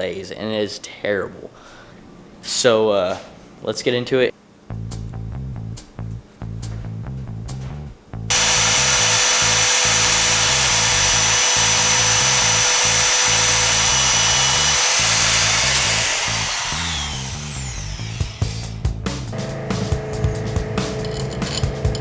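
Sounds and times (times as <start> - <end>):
power tool running: 8.3 - 22.0
background music with bass beat: 18.6 - 22.0.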